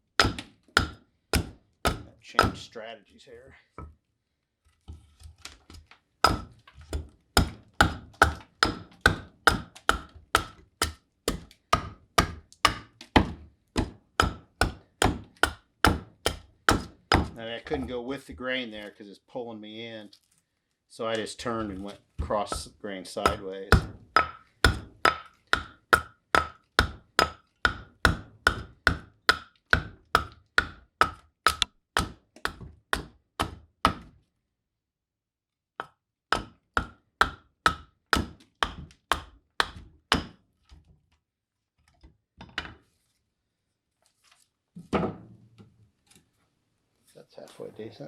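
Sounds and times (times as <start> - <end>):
hatchet chopping wood: 0.1 - 2.7, 6.2 - 17.4, 22.5 - 34.2, 35.8 - 40.4.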